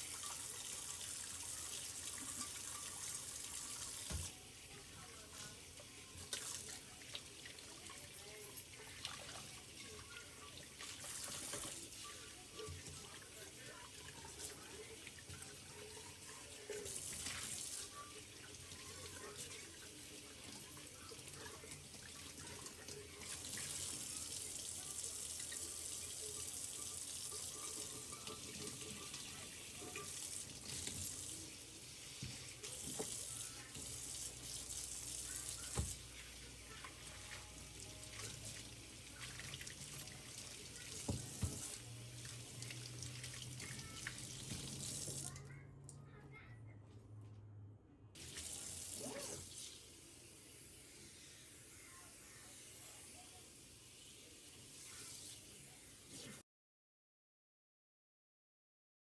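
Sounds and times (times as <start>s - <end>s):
tap running into a sink: 3.9s - 4.3s, 35.6s - 36.1s, 41.0s - 41.8s.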